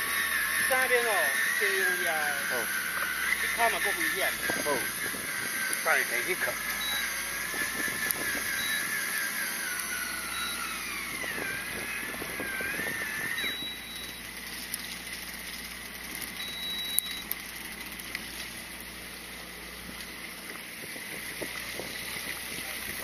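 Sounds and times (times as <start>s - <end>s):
boat engine running: 0.0s - 23.0s
wavering whine: 0.0s - 23.0s
wind noise: 4.3s - 5.8s, 7.4s - 8.6s, 11.0s - 13.7s, 20.8s - 23.0s.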